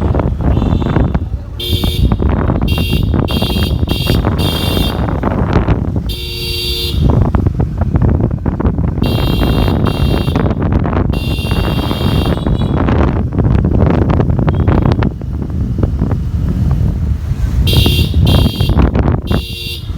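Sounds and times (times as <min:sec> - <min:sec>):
vehicle horns honking: 0:00.0 - 0:05.4, 0:06.0 - 0:07.4, 0:08.9 - 0:13.0, 0:14.5 - 0:15.0, 0:17.6 - 0:19.9
road traffic noise: 0:00.0 - 0:19.9.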